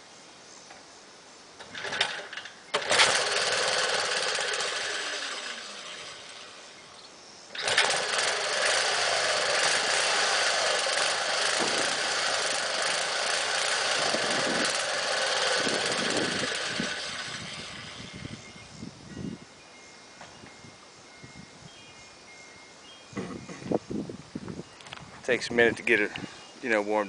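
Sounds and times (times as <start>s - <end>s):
small engine starting and running: 1.6s - 6.8s, 7.5s - 18.5s.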